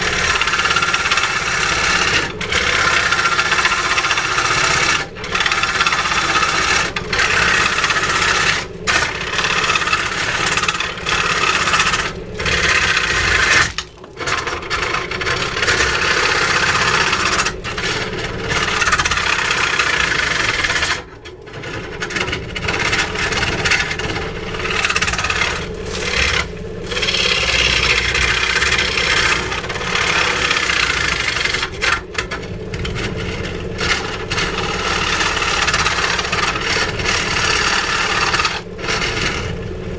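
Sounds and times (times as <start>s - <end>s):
motor hum: 0.0s - 39.9s
power tool scraping wood: 0.0s - 39.9s.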